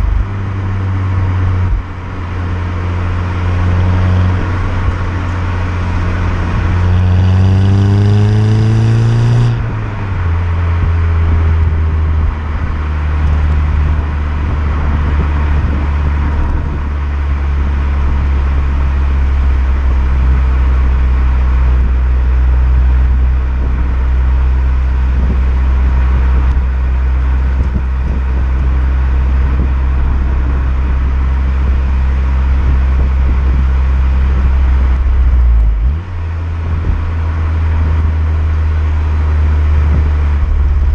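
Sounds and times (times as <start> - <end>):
car engine accelerating: 0.0 - 40.9
road noise: 0.0 - 40.9.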